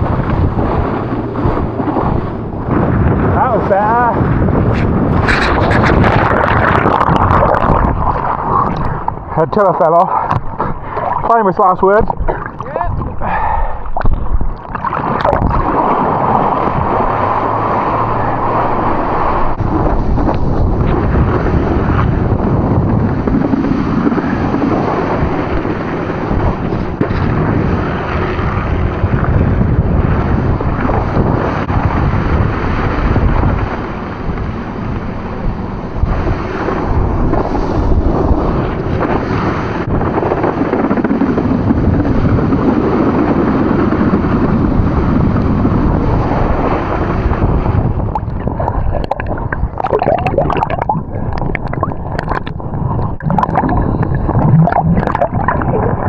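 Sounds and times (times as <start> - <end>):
water splashing and gurgling: 0.0 - 9.4, 10.0 - 56.0
rushing water from motorboat: 0.0 - 56.0
wind buffeting microphone: 0.0 - 56.0.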